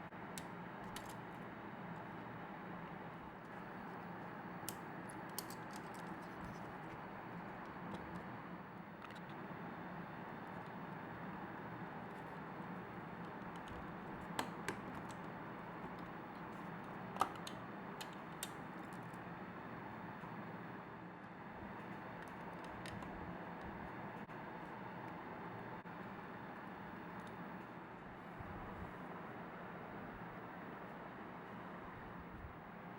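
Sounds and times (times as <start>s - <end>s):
small hard parts clicking: 4.7s - 6.6s.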